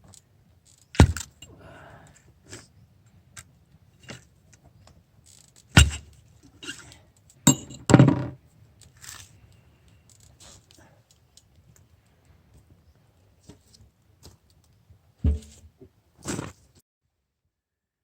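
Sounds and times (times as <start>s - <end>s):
camp cookware clinking: 6.6s - 8.2s.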